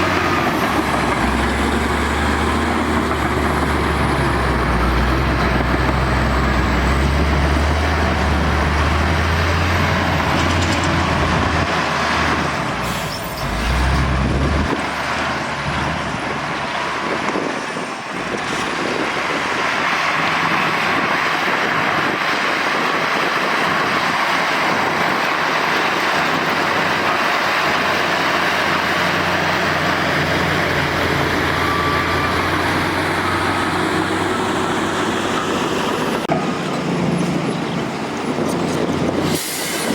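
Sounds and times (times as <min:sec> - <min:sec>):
deep diesel engine rumble: 0:00.0 - 0:39.9.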